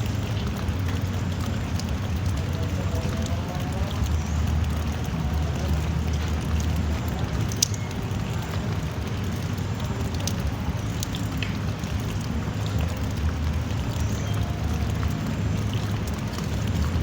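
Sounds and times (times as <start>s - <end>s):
continuous low rumble: 0.0s - 17.0s
drizzling rain: 0.0s - 17.0s.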